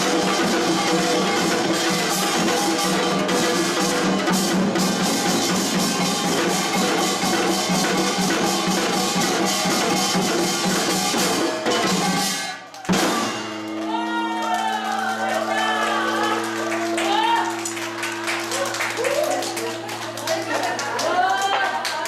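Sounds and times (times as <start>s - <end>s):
folk percussion ensemble: 0.0s - 22.0s
steady held tones: 13.2s - 21.8s.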